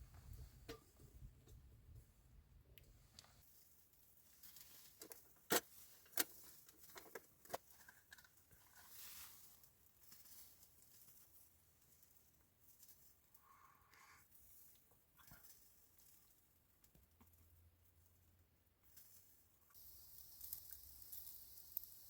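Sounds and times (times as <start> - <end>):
faint hiss: 18.9 - 22.0.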